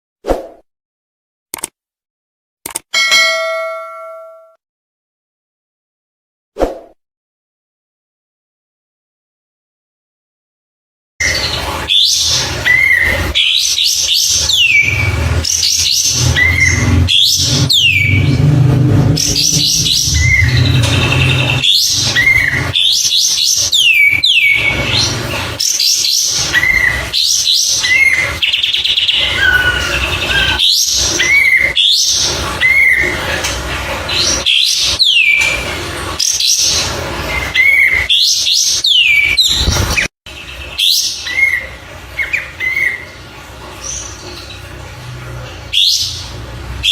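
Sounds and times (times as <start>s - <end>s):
songbird singing: 19.2s - 22.6s, 27.8s - 31.7s.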